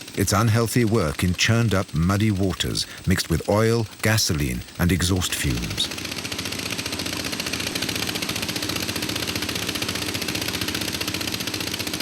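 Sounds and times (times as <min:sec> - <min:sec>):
dredge engine chugging: 0:00.0 - 0:06.1.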